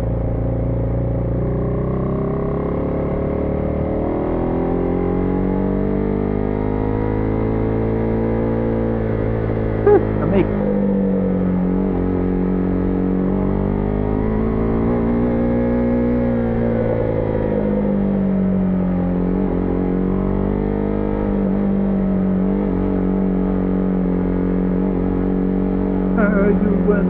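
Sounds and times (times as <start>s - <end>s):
motorcycle engine running: 21.1s - 27.0s.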